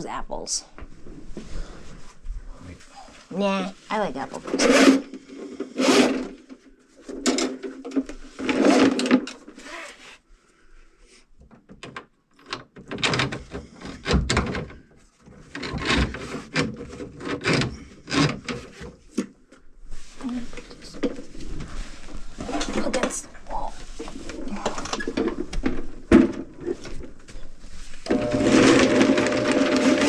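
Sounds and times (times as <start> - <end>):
sliding and rubbing: 1.0 - 7.2, 19.9 - 30.0
hard objects knocking and clattering: 24.3 - 27.4.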